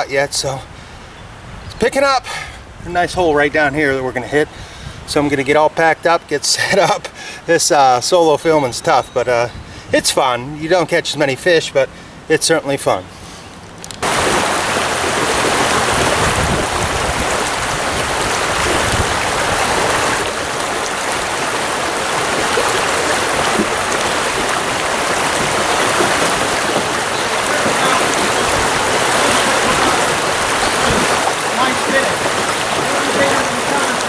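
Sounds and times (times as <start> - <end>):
stream water rushing: 13.1 - 34.0.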